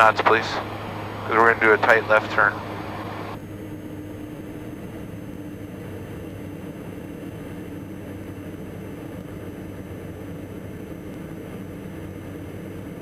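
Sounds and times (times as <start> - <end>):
aircraft engines droning: 0.0 - 13.0.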